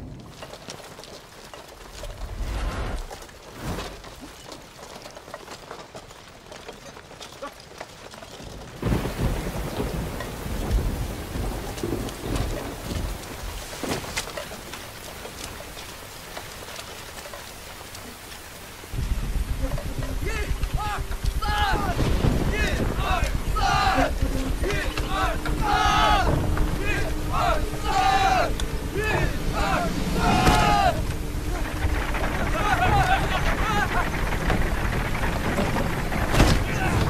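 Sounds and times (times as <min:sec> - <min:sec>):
heavy rain falling: 0:00.0 - 0:37.0
thunder rolling: 0:08.6 - 0:37.0.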